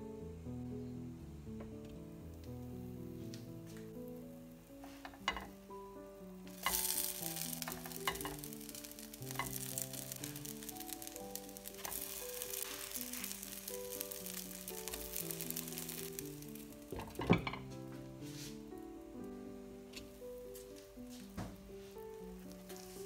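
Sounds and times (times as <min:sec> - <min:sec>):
soft melody: 0:00.0 - 0:23.0
pancakes sizzling in oil: 0:02.8 - 0:23.0
spatula tapping pan: 0:04.8 - 0:05.6, 0:06.5 - 0:17.8.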